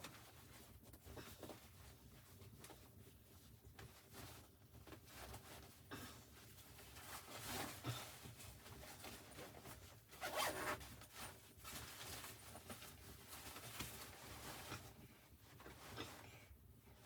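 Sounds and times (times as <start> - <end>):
zipper being pulled: 10.2 - 10.8.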